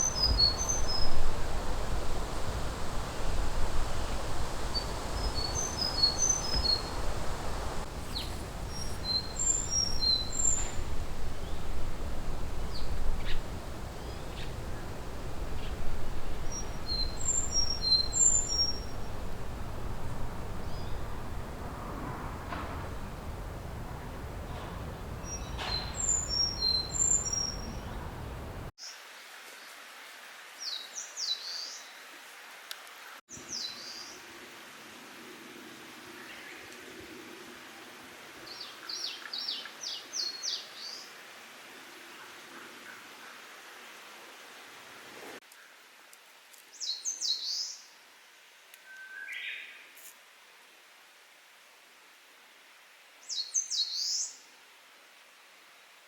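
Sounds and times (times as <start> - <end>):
soft lower bird call: 0.0 - 28.7
warbler singing high whistles: 0.0 - 28.7
faint outdoor hiss: 0.0 - 56.0.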